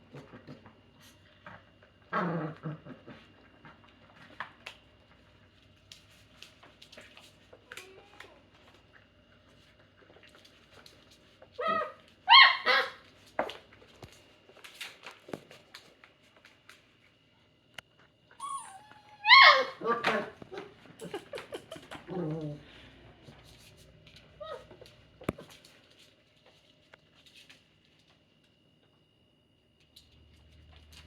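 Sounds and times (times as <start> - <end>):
puppy whining yips: 11.6 - 13.0, 18.4 - 20.0.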